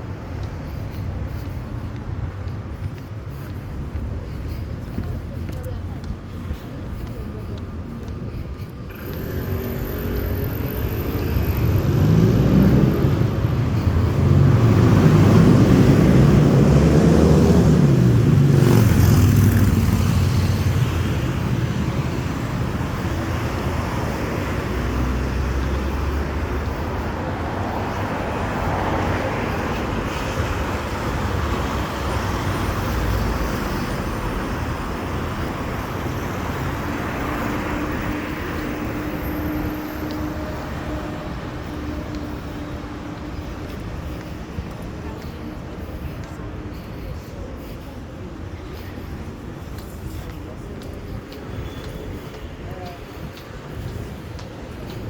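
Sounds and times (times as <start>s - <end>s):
vehicle engine and road noise: 0.0s - 55.0s.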